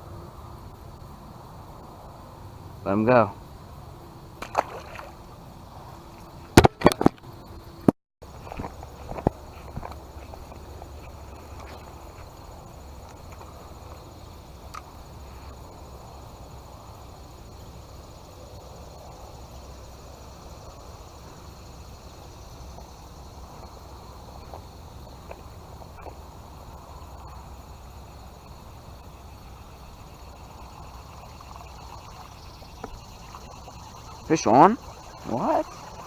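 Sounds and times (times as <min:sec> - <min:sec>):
insects trilling: 0:00.0 - 0:36.0.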